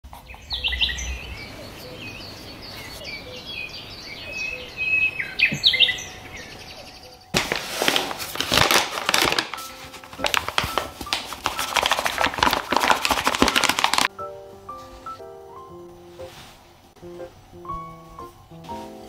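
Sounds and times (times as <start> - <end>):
small birds chirping: 0.1 - 7.4.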